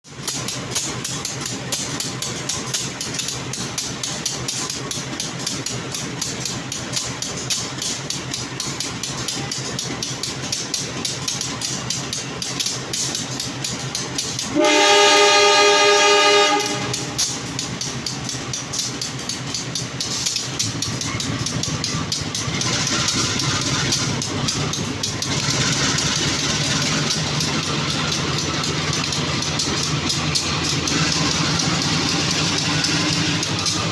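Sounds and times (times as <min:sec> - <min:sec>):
train noise: 0:00.0 - 0:33.9
locomotive engine: 0:00.1 - 0:33.9
locomotive horn: 0:14.4 - 0:17.4.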